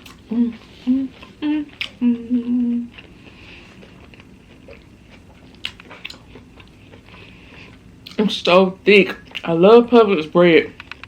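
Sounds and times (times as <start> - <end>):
woman humming mmm: 0.0 - 3.0
close chewing: 0.0 - 8.4, 9.1 - 9.6
bite clicks: 5.4 - 6.7.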